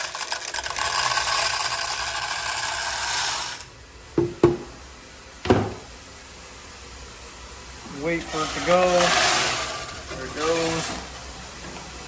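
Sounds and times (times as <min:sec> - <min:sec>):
corn kernels rattling: 0:00.0 - 0:03.7, 0:08.3 - 0:11.1.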